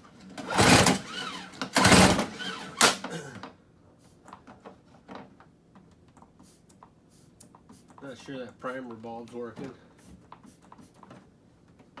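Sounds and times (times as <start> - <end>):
engine turning over: 0.2 - 3.1
recoil starter rope whirring: 0.2 - 3.2
rattling ratchet: 0.5 - 2.9.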